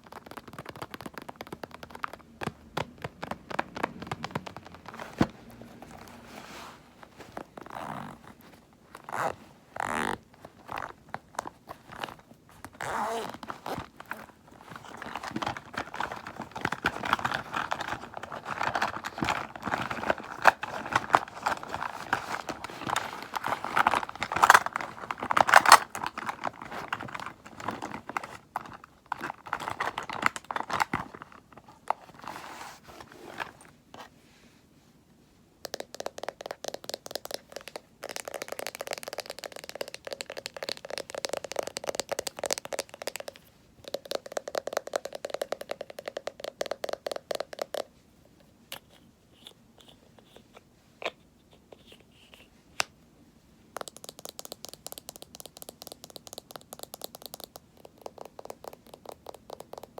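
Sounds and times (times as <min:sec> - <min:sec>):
packaging crinkling and crackling: 0:00.0 - 0:33.8
small taps and clicks: 0:35.6 - 0:47.9, 0:53.8 - 0:59.9.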